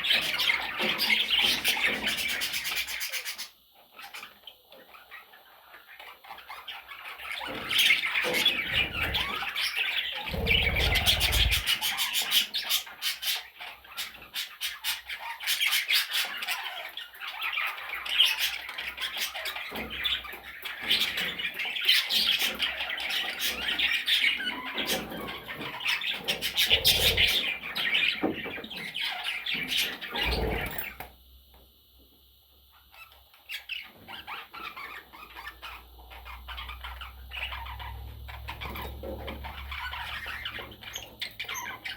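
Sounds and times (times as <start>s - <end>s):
budgerigar chattering: 8.5s - 9.5s, 10.2s - 12.0s, 26.4s - 27.4s.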